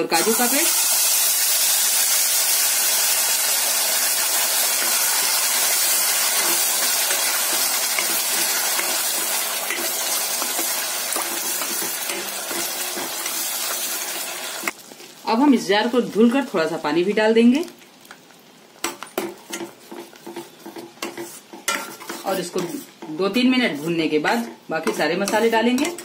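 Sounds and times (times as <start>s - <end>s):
paste sizzling in hot oil: 0.0s - 16.8s.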